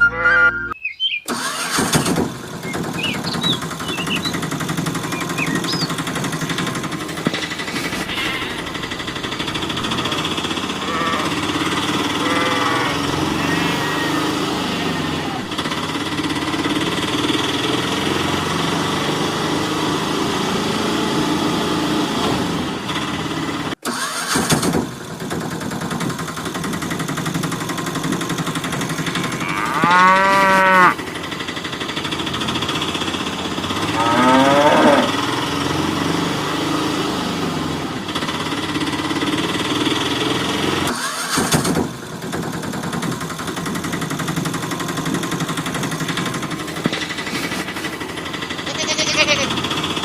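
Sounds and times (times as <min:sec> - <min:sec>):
mechanical hum: 0:07.1 - 0:17.1
cow mooing: 0:09.7 - 0:15.6, 0:28.9 - 0:31.0, 0:33.7 - 0:35.7, 0:48.7 - 0:49.5
short animal call: 0:09.8 - 0:15.5, 0:48.7 - 0:49.5.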